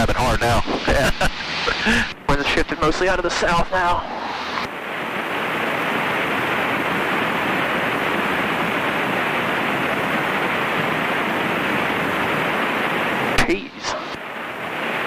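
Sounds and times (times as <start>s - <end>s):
aircraft cabin noise: 0.0s - 4.7s.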